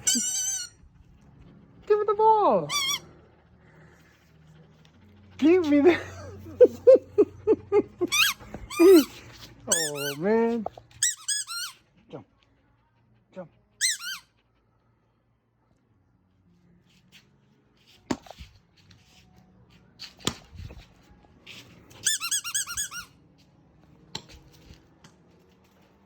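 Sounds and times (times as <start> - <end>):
squeaky dog toy squeaking: 0.0 - 1.0, 2.6 - 3.5, 8.0 - 12.0, 13.8 - 14.4, 22.0 - 23.2.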